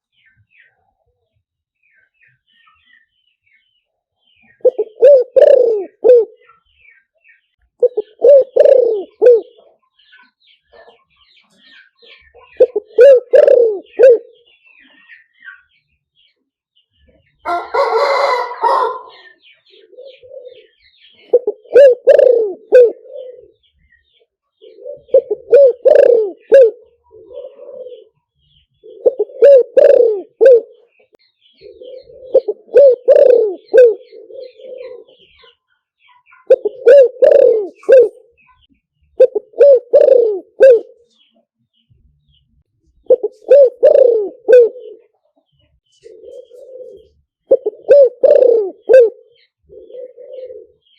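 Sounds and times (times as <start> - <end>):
dove cooing: 4.4 - 6.6, 7.8 - 9.8, 12.0 - 15.0, 17.5 - 35.6, 36.4 - 38.5, 39.2 - 41.1, 43.0 - 45.2, 45.9 - 50.9.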